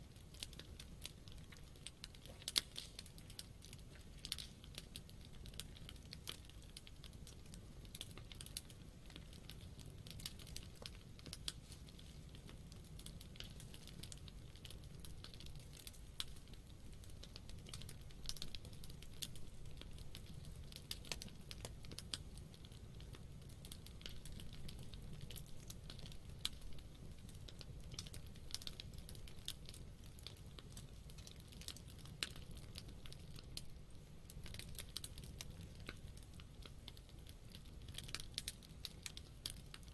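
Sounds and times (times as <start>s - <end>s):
campfire crackling and popping: 0.0s - 39.9s
low fire rumble: 0.0s - 39.9s.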